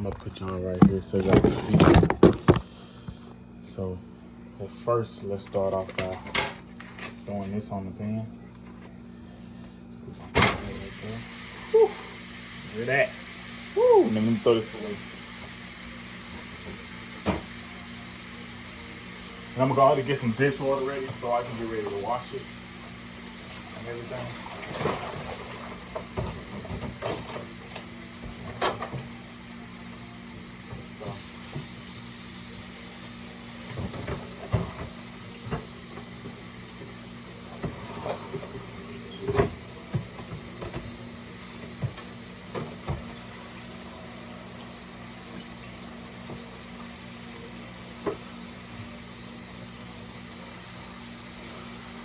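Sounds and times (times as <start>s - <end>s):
meat sizzling in a frying pan: 10.7s - 52.0s.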